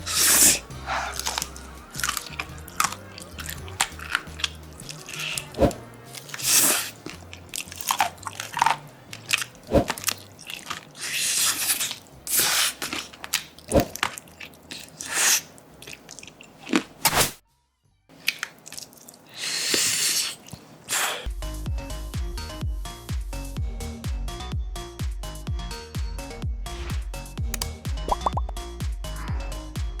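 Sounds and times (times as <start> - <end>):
crunchy chewing: 0.0 - 17.1, 18.2 - 21.3
sharp bite clicks: 27.6 - 28.6.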